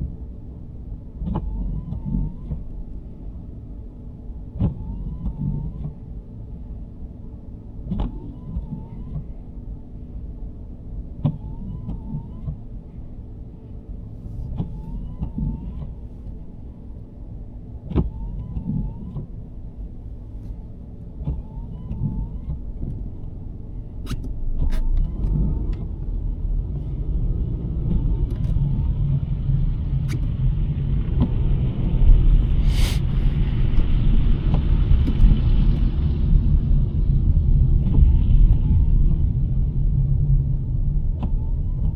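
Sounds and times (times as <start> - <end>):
car road noise rumble: 0.0 - 41.9
brief hiss: 32.5 - 33.4
faint short squeak: 32.6 - 33.3.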